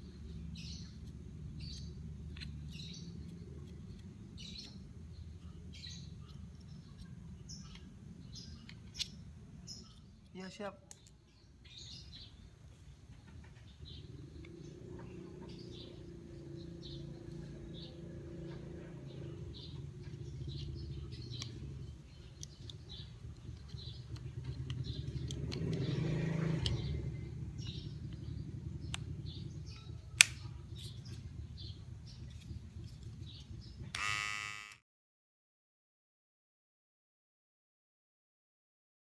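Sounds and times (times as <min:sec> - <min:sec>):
small birds chirping: 0:00.0 - 0:34.6
steady low rumble: 0:26.7 - 0:34.0.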